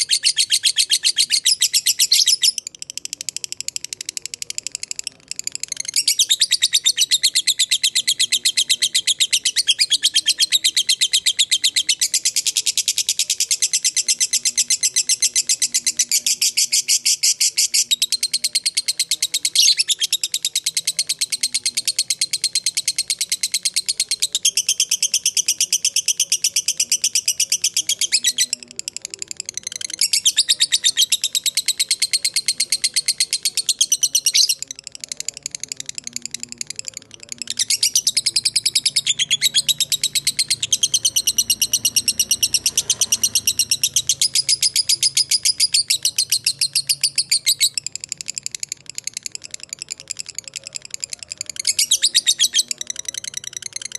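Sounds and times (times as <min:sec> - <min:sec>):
lovebird chattering call: 0:37.2 - 0:53.9.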